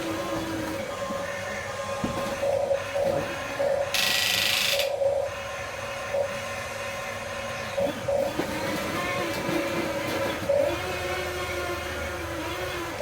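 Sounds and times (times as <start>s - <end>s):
toy electric motors whirring: 3.9s - 4.9s.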